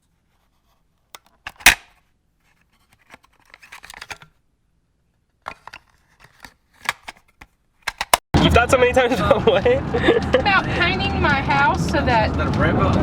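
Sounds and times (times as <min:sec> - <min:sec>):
sharp clicks and knocks: 0:07.8 - 0:08.2.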